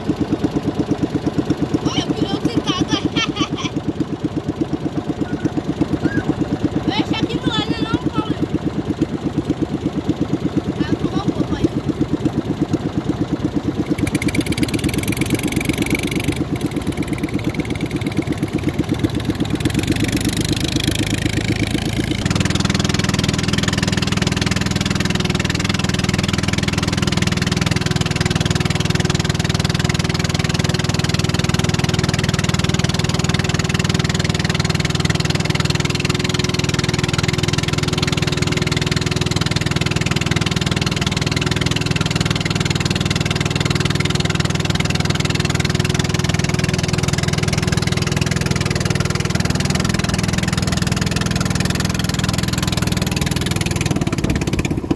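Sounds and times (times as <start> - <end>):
motorboat engine running: 0.0 - 54.9.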